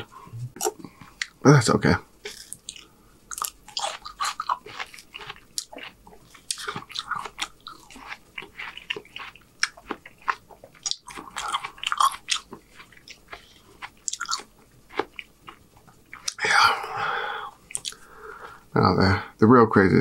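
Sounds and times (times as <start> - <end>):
person chewing with wet smacks: 2.2 - 16.4, 17.6 - 18.0.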